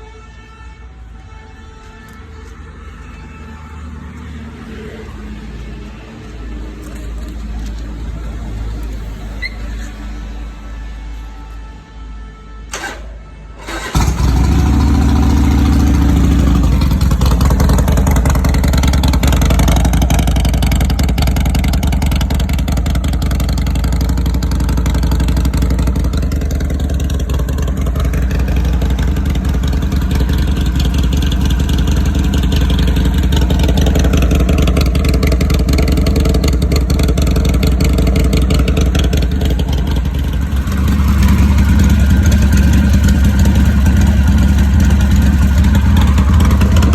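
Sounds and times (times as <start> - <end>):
motorcycle engine running loud: 13.6 - 46.9.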